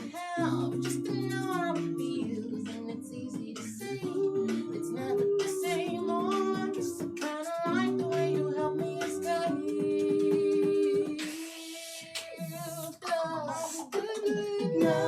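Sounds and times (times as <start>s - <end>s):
sustained accompanying notes: 0.0s - 11.2s, 14.8s - 15.0s
group singing: 0.0s - 15.0s
woman lead singing: 0.0s - 15.0s.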